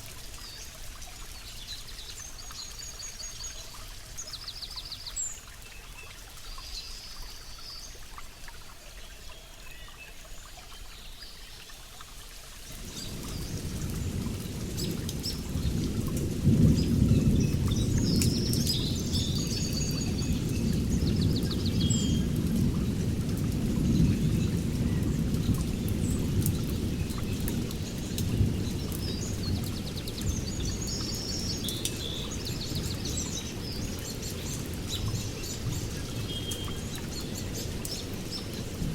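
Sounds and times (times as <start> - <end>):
songbirds chirping and trilling: 12.7 - 38.9.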